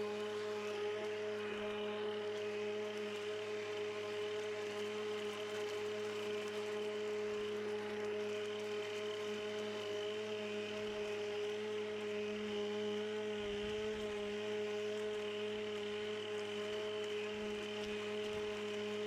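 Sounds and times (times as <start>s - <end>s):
electric lawnmower motor whining: 0.0s - 19.0s.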